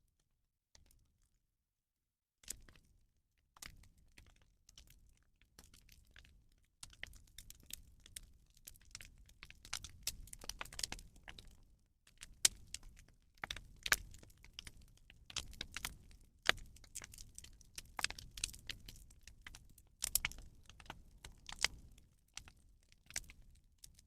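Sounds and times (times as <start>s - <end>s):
bonfire crackling and popping: 7.0s - 11.6s, 12.2s - 23.4s.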